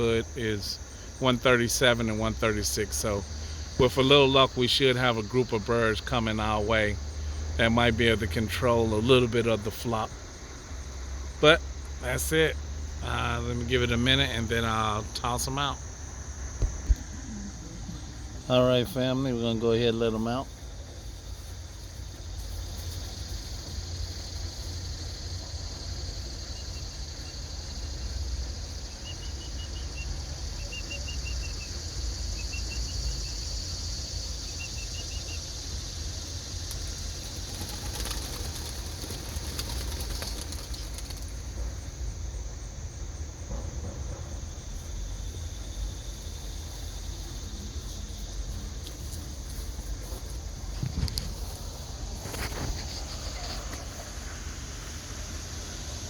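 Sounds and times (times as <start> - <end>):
high insect drone: 0.0 - 56.0
pigeons flapping wings: 36.7 - 41.7
wind rumble on microphone: 50.6 - 51.5.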